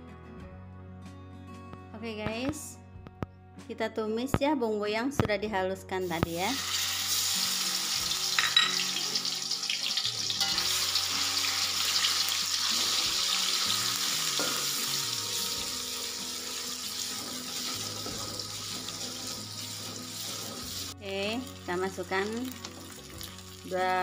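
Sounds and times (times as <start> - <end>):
spice paste sizzling in hot oil: 6.1 - 24.0
metal spatula stirring in wok: 16.9 - 20.9.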